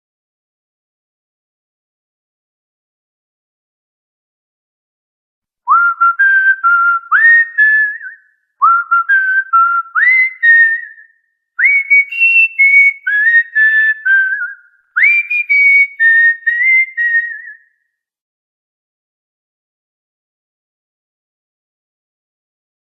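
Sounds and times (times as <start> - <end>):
person whistling a tune: 5.7 - 17.8.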